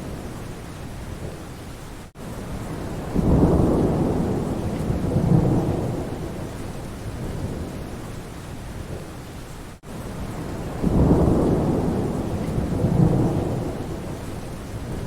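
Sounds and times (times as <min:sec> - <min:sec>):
steady rain: 0:00.0 - 0:15.0
thunder rumbling: 0:02.5 - 0:08.0, 0:10.2 - 0:15.0.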